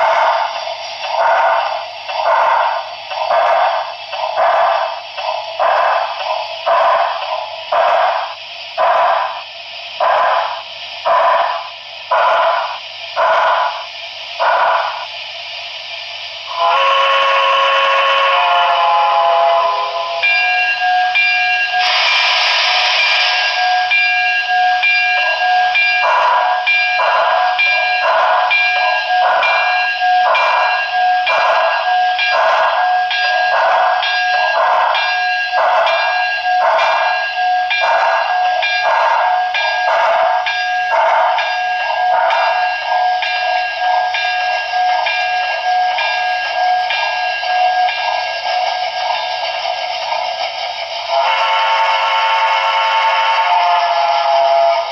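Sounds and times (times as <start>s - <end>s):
steam exhaust chuffs: 0.0s - 54.9s
locomotive bell ringing: 16.5s - 54.9s
chime whistle: 19.6s - 54.9s.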